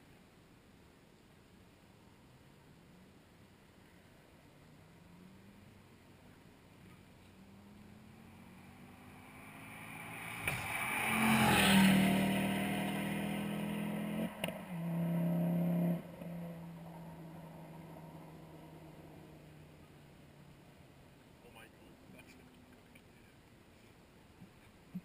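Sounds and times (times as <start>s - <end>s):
car accelerating past: 6.8s - 20.6s.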